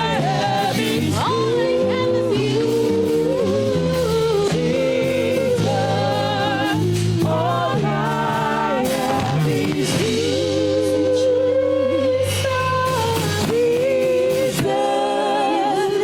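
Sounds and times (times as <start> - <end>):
person singing with vibrato: 0.0 - 16.0.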